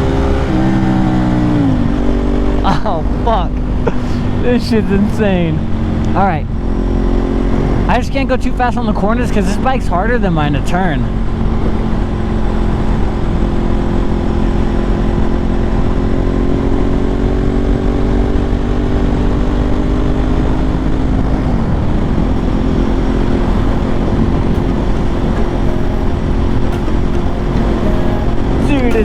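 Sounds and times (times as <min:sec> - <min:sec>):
motorcycle engine pulling: 0:20.0 - 0:29.0.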